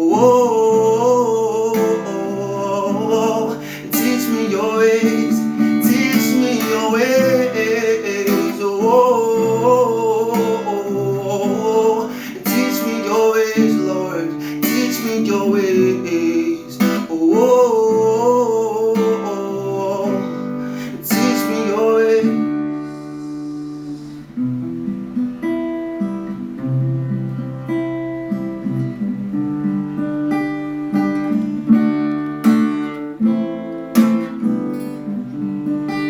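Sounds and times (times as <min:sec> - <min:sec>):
person singing: 0:00.0 - 0:24.4
acoustic guitar chords: 0:00.0 - 0:36.0.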